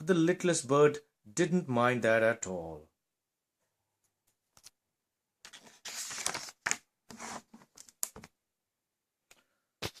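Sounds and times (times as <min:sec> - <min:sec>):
rustling and handling noises: 0:05.4 - 0:08.4.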